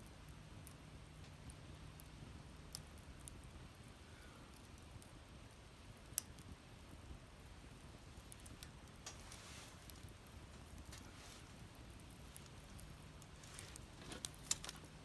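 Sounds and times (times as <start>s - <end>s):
wood fire crackling: 0.0s - 15.0s
fire pop: 8.2s - 14.9s.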